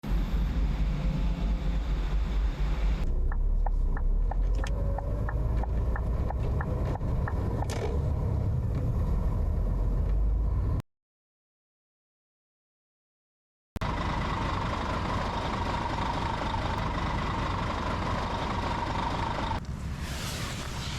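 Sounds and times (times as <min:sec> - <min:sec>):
heavy truck rumbling: 0:13.8 - 0:20.9.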